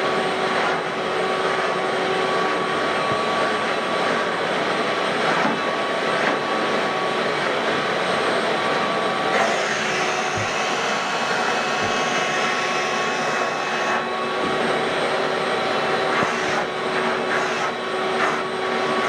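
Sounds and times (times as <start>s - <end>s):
floor cleaning machine motor whine: 0.0s - 19.0s.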